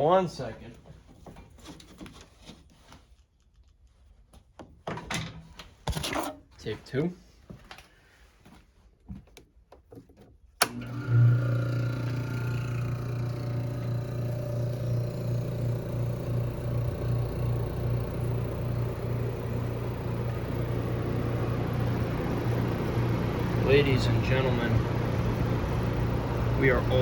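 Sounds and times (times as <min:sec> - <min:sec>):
air conditioner humming: 0:10.6 - 0:27.0.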